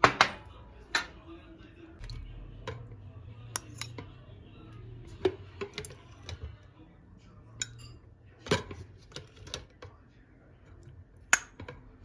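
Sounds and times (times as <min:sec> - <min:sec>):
dishes and utensils clinking: 0:00.0 - 0:01.2, 0:02.0 - 0:04.4, 0:05.0 - 0:06.6, 0:07.5 - 0:10.0, 0:10.8 - 0:12.0
faint low hum: 0:00.0 - 0:12.0.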